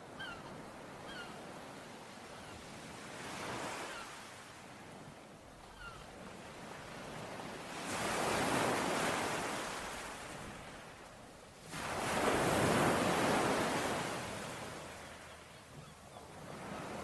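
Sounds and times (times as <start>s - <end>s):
ocean waves breaking on shore: 0.0s - 17.0s
faint bird chirp: 5.6s - 6.1s, 14.6s - 17.0s.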